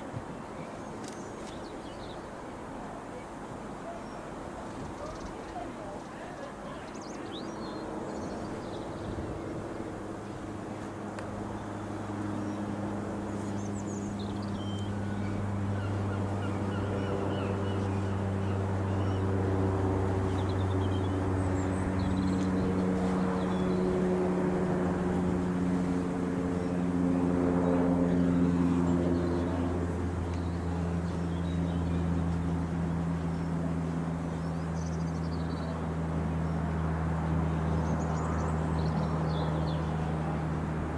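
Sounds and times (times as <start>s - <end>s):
propeller plane flying over: 4.4s - 40.9s.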